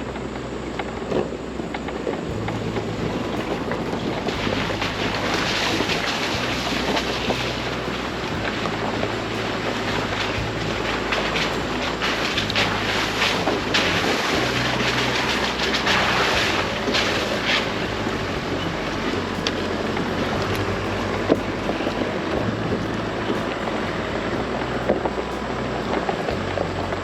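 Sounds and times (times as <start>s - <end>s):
low engine hum: 0.0s - 27.0s
tyre noise on gravel: 0.0s - 27.0s.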